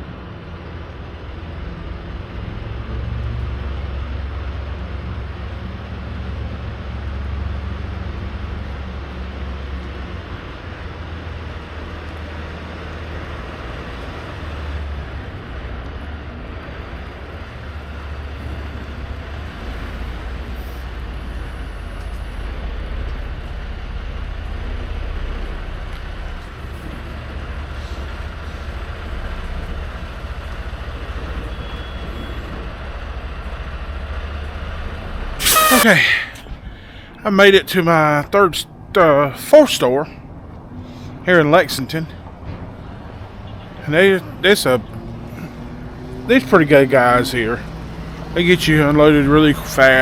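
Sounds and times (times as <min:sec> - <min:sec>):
truck diesel engine drone: 0:00.0 - 0:40.0, 0:40.6 - 0:50.0
road noise hiss: 0:00.0 - 0:50.0.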